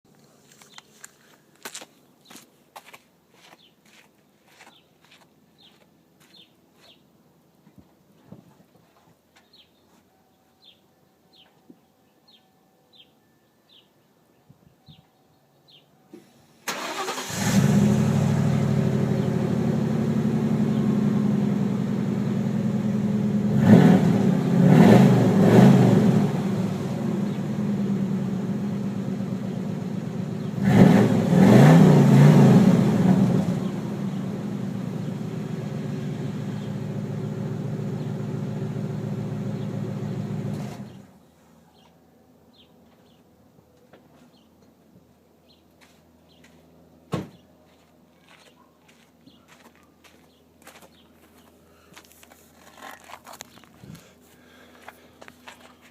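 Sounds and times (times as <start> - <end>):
car engine idling: 16.7 - 23.6, 32.9 - 41.1
car engine revving: 16.7 - 41.0.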